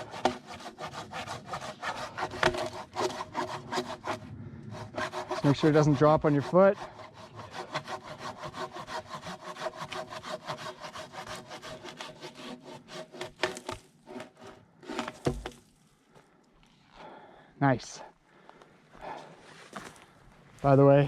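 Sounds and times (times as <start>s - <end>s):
hand saw cutting log: 0.0s - 15.6s
log thud: 13.2s - 15.8s.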